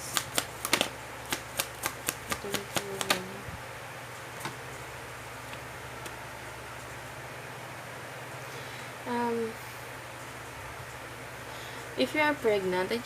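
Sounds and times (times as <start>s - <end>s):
cards clicking: 0.0s - 3.3s
faint room hum: 0.0s - 13.0s.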